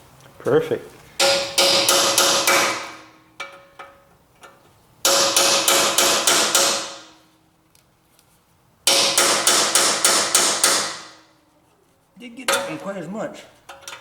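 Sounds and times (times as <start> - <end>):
hammer striking metal: 1.2 - 4.0, 5.0 - 7.2, 8.9 - 11.2.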